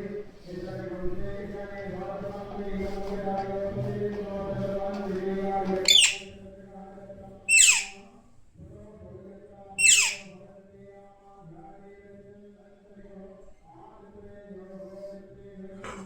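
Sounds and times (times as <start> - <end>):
parrot screeching: 5.9 - 6.3, 7.5 - 8.0, 9.8 - 10.3.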